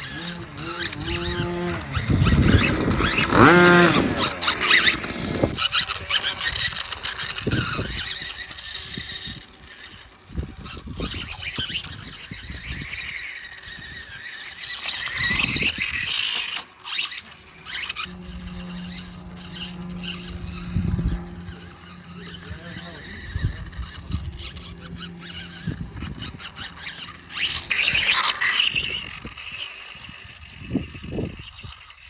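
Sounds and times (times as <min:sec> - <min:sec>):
steady low hum: 0:00.0 - 0:05.6, 0:17.8 - 0:29.3
electric motor whining: 0:00.0 - 0:32.0.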